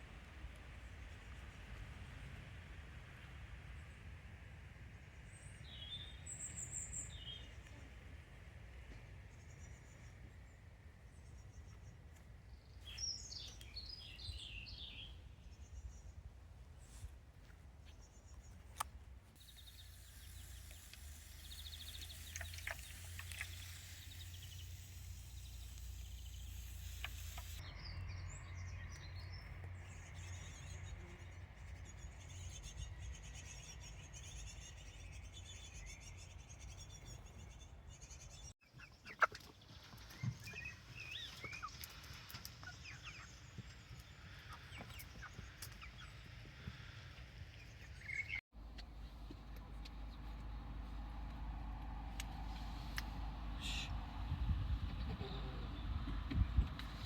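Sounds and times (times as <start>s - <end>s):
bird calls: 19.4s - 47.0s
chickens clucking: 38.7s - 43.3s
low wind rumble: 50.0s - 57.0s.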